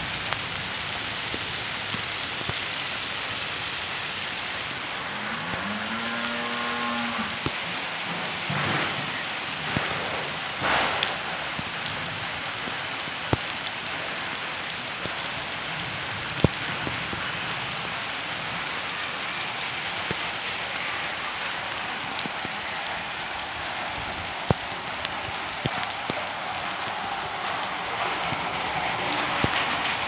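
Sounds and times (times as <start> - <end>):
steady rain on trees: 0.0 - 30.0.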